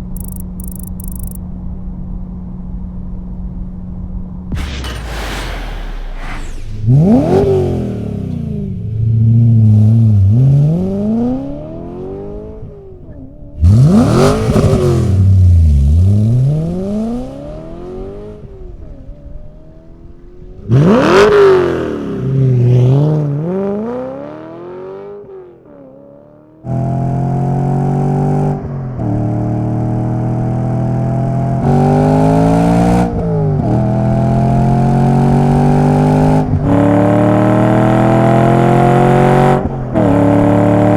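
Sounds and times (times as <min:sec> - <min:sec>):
car engine accelerating hard: 0:13.6 - 0:19.4.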